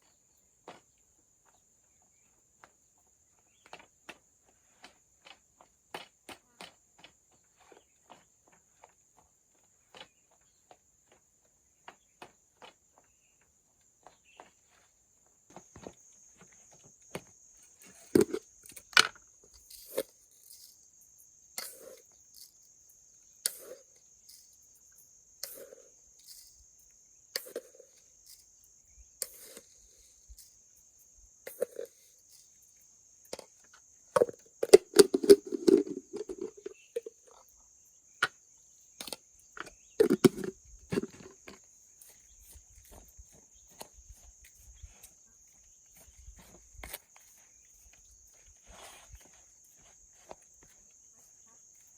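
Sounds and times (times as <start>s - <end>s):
handling knocks and rustles: 14.0s - 22.7s, 33.3s - 37.5s, 38.9s - 50.9s
high-pitched insect trill: 15.5s - 51.9s.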